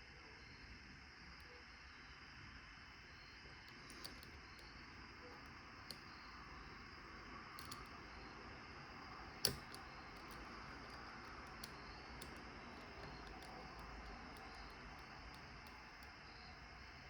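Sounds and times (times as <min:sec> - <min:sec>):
sharp padlock click: 0:03.6 - 0:06.7, 0:07.5 - 0:08.2, 0:09.3 - 0:16.2
lock picks ticking in padlock: 0:03.6 - 0:08.3, 0:09.1 - 0:17.0.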